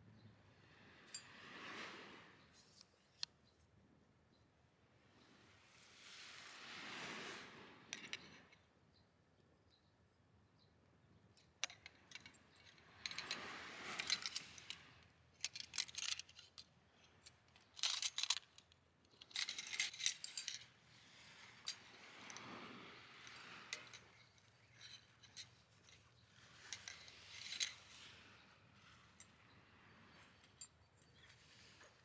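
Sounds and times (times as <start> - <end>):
metal camping gear clinking: 11.4 - 20.8.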